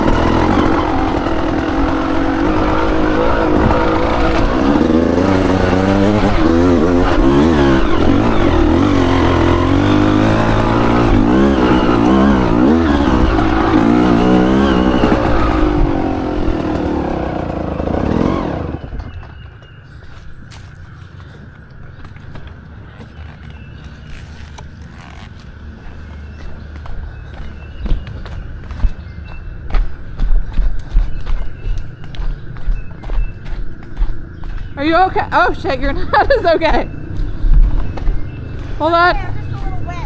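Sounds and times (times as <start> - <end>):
dirt bike engine revving: 0.0 - 19.5.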